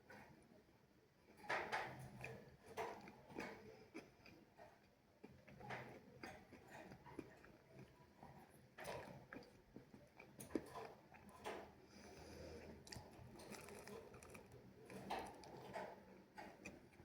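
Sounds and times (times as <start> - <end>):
person chewing food: 9.0 - 11.2, 12.1 - 14.6.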